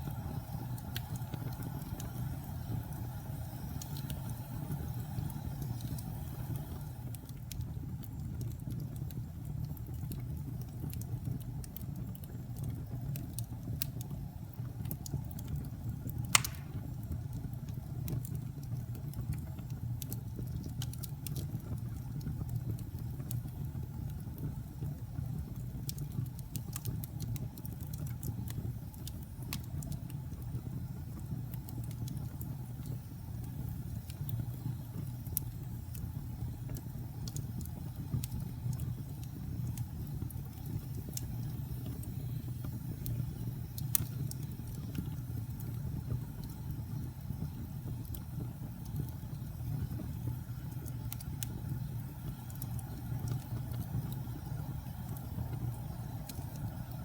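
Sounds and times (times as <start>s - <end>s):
wood fire crackling: 0.0s - 57.0s
loud sharp pop from fire: 16.2s - 17.0s.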